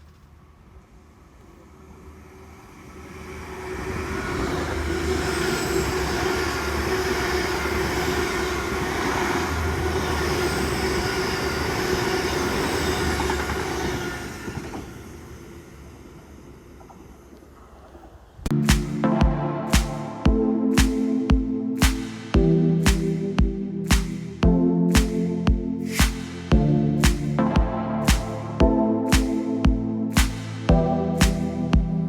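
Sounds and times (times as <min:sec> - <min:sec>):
train passing: 0:01.6 - 0:17.3.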